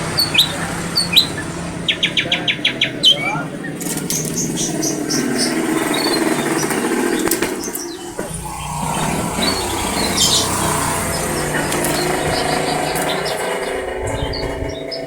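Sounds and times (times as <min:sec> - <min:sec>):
songbird chirping: 0:00.0 - 0:15.0
steady low hum: 0:02.6 - 0:15.0.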